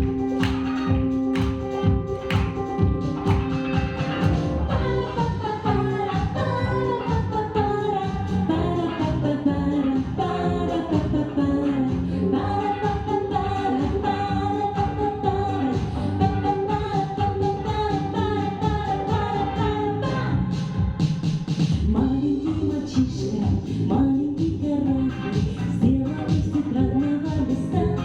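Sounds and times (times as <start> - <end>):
instrumental accompaniment with beat: 0.0 - 8.4
girl singing pop song: 0.0 - 28.0.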